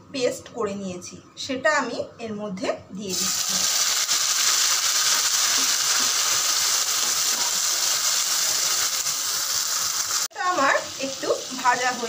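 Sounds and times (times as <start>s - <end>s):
paste sizzling in hot oil: 3.1s - 12.0s.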